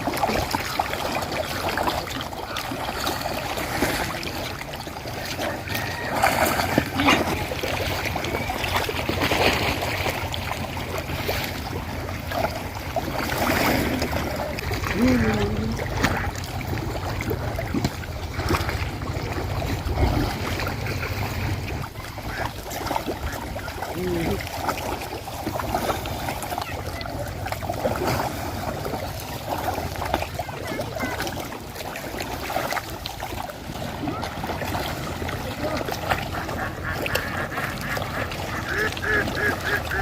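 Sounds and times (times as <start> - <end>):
ducks quacking: 21.2 - 24.4, 35.4 - 40.0.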